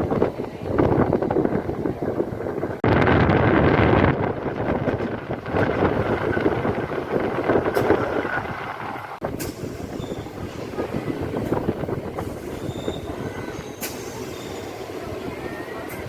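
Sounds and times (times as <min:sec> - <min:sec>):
train rumbling on rails: 0:00.0 - 0:16.0
sharp clicks of train: 0:04.9 - 0:15.0, 0:15.8 - 0:16.0
high wheel squeals: 0:05.6 - 0:10.9, 0:12.2 - 0:15.9.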